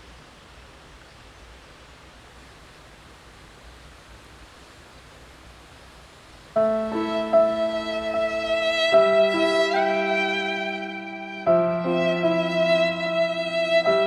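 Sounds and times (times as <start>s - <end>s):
music with held notes: 6.6s - 14.0s.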